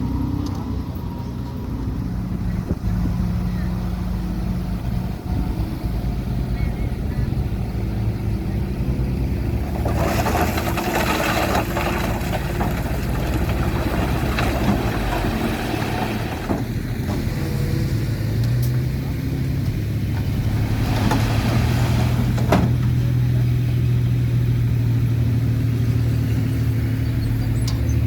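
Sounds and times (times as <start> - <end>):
diesel engine running under load: 0.0 - 28.0
loud rushing rattling noise: 9.5 - 17.0.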